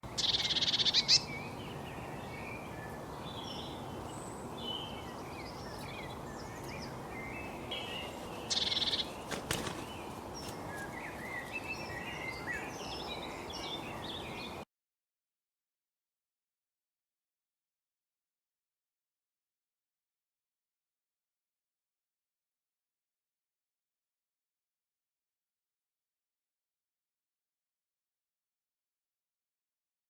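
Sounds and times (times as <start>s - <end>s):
outdoor background hiss: 0.0s - 14.6s
songbirds chirping and twittering: 0.0s - 14.7s
loud rapid bird trill: 0.1s - 1.4s, 7.8s - 10.1s.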